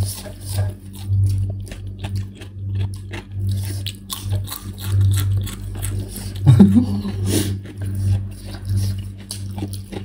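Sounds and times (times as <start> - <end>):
chewing noodles: 0.0 - 10.0
low hum: 0.0 - 10.0.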